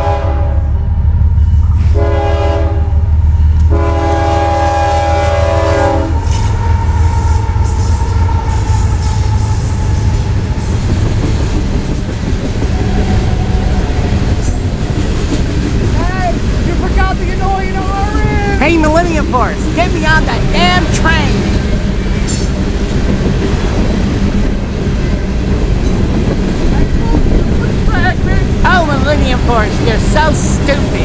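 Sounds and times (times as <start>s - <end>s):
train air horn blasts: 0.0s - 0.8s, 1.6s - 10.3s
locomotive rumble: 0.0s - 31.0s
train wheels rumbling and clacking: 0.0s - 31.0s.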